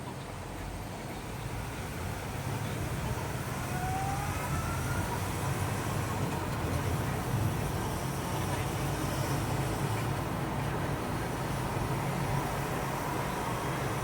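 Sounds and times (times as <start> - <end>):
vehicle engine low rumble: 0.0 - 14.0.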